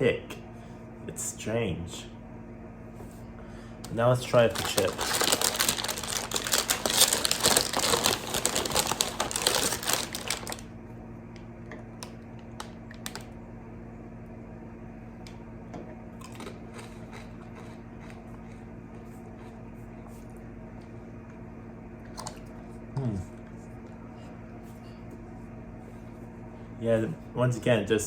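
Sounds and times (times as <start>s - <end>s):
bag of chips crinkling: 4.2s - 10.7s.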